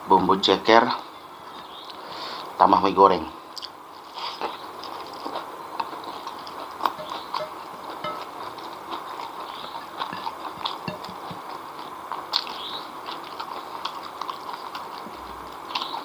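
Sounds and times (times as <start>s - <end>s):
close-up chewing: 3.5s - 16.0s.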